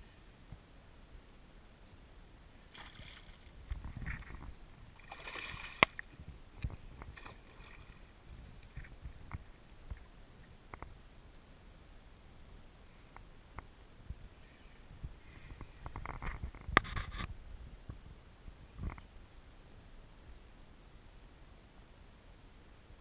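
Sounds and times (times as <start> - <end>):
water splashing and sloshing: 2.6 - 10.1.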